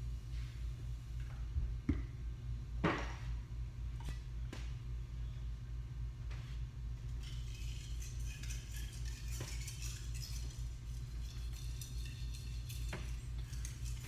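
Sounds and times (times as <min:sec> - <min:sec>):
steady low hum: 0:00.0 - 0:14.0
knife scraping on whetstone: 0:07.2 - 0:14.0.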